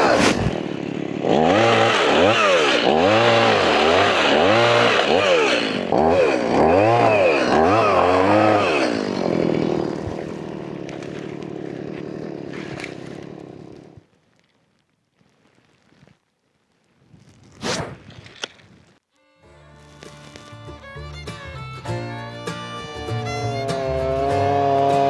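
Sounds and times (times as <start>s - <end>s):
chainsaw engine revving: 0.0s - 14.0s, 23.3s - 25.0s.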